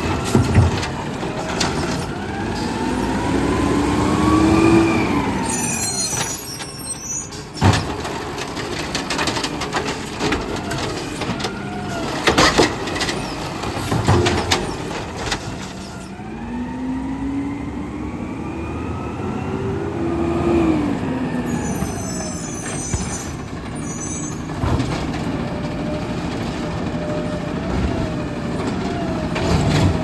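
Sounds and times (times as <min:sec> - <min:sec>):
garbage truck engine revving: 0:00.0 - 0:06.4
metallic clunks and bangs: 0:24.5 - 0:25.5.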